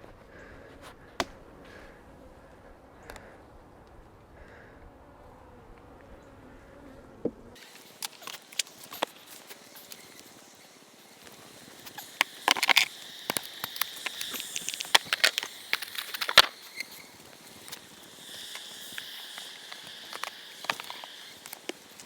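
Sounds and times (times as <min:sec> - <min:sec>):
insect buzz: 0:05.2 - 0:22.0.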